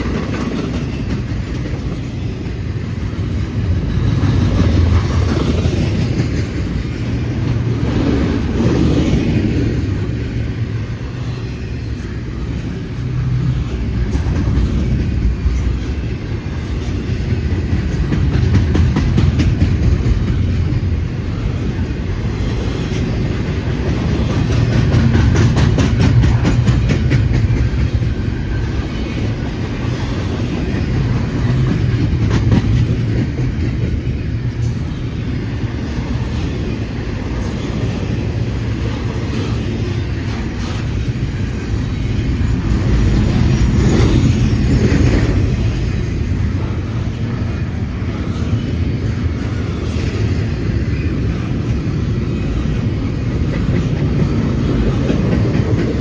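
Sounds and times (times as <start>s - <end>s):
steel wheels rumbling on rails: 0.0s - 56.0s
wheels clicking over rail joints: 13.8s - 56.0s.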